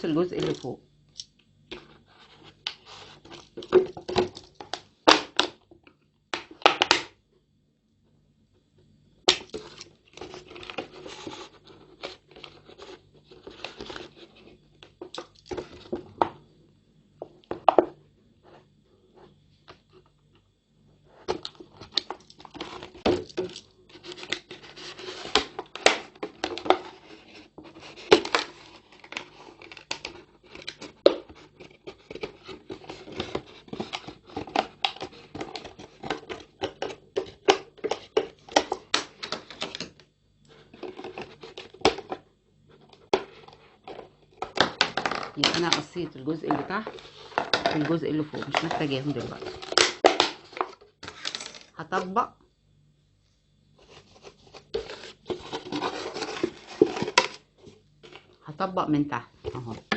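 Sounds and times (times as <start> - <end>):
plastic crinkling: 53.8 - 58.4.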